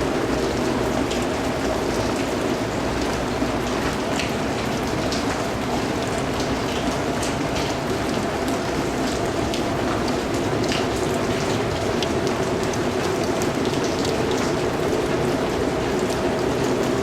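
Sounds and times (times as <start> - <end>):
steady rainfall patter: 0.0 - 17.0
raindrops ticking: 0.1 - 17.0.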